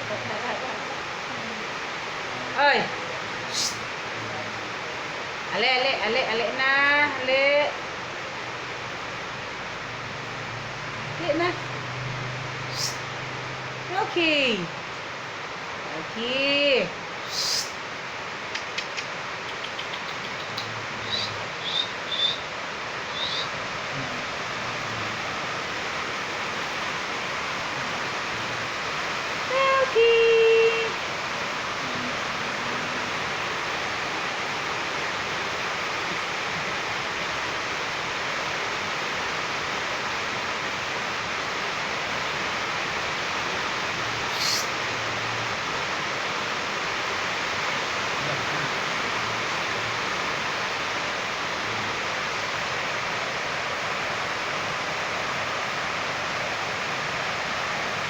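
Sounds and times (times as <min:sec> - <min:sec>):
rain hissing: 0:00.0 - 0:58.0
loud pitched call: 0:03.4 - 0:03.9, 0:20.4 - 0:25.2, 0:44.2 - 0:45.0.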